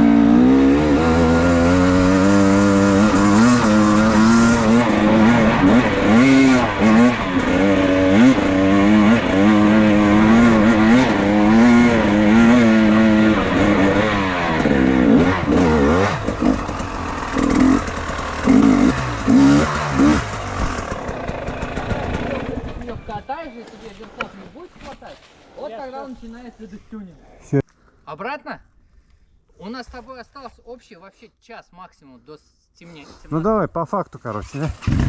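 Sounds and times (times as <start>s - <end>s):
motorcycle engine revving: 0.0s - 24.3s, 34.6s - 35.0s.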